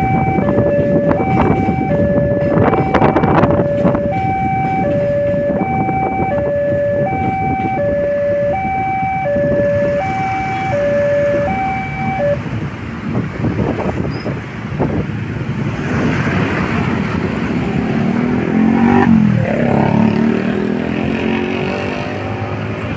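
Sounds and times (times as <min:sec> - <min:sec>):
level crossing alarm two-tone: 0:00.0 - 0:12.4
motorcycles and cars moving off: 0:00.0 - 0:22.9.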